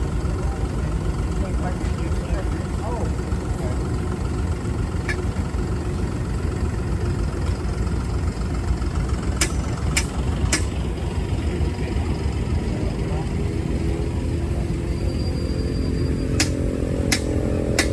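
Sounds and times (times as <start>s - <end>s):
engine rumbling: 0.0s - 17.9s.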